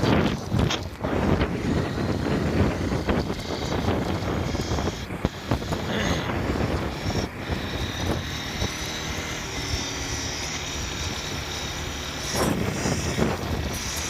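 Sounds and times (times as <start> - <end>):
motorcycle engine cruising: 0.0 - 14.0
road and wind noise: 0.0 - 14.0.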